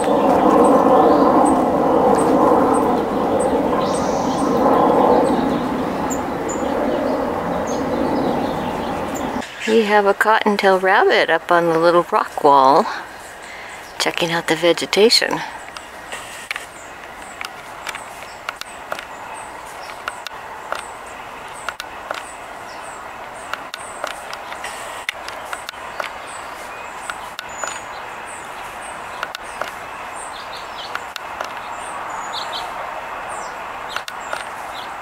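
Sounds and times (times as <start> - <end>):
background hiss: 8.4 - 35.0
small bird chirping: 16.6 - 32.7.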